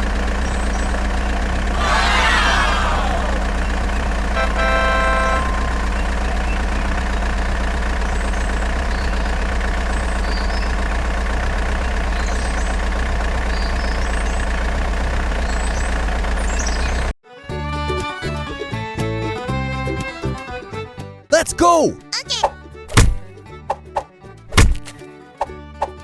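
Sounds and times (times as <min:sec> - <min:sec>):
truck engine idling: 0:00.0 - 0:21.4, 0:22.5 - 0:26.0
short horn-like tone: 0:04.4 - 0:06.6.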